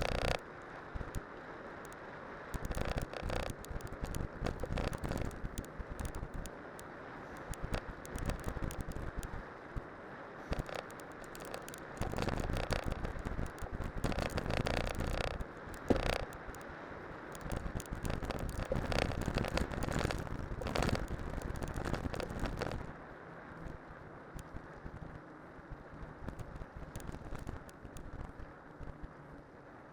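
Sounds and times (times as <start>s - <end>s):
bike tyres crackling on snow: 0.0s - 0.4s, 2.6s - 6.5s, 10.4s - 16.6s, 17.2s - 22.9s.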